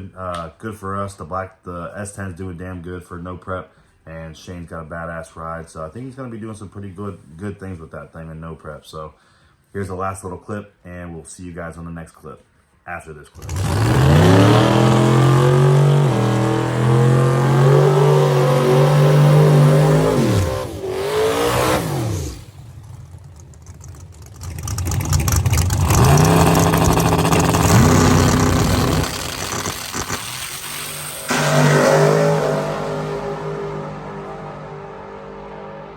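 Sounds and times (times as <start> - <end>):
drag racing engines at full throttle: 13.4 - 35.9.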